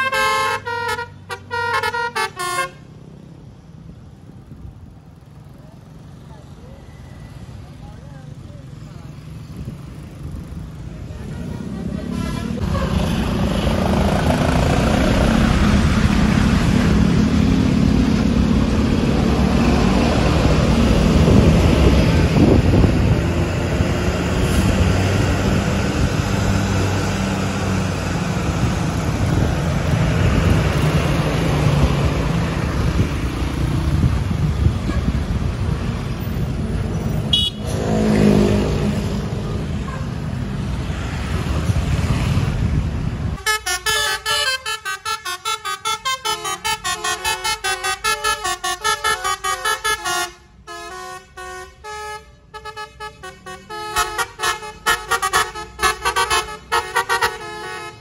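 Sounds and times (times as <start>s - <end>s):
road traffic noise: 0.0s - 58.0s
heavy vehicle engine running: 4.1s - 37.6s.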